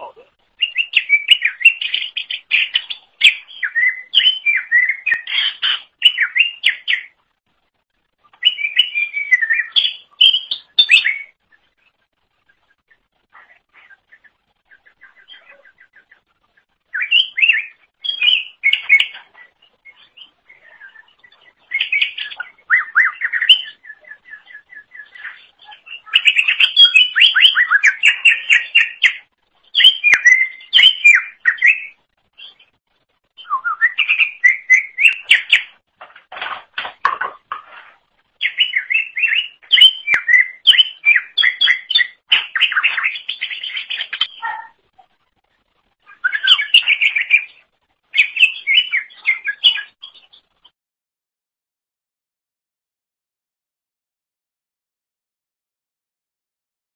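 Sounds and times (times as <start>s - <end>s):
bird singing chirps and whistles: 0.6s - 7.2s, 8.4s - 11.7s, 16.9s - 32.7s, 33.4s - 35.8s, 38.4s - 44.7s, 46.1s - 50.4s.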